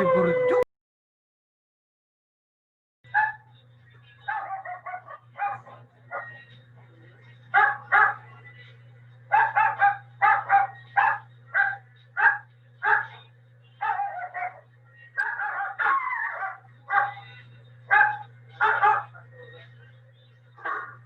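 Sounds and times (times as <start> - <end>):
dog barking: 3.1 - 3.5, 4.3 - 6.4, 7.5 - 8.3, 9.3 - 13.2, 13.8 - 14.6, 15.2 - 17.2, 17.9 - 19.2, 20.6 - 21.0
low hum: 3.1 - 21.0.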